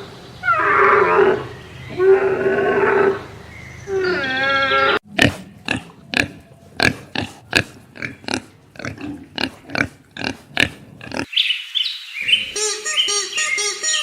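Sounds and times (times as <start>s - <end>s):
pig grunting: 5.0s - 11.3s.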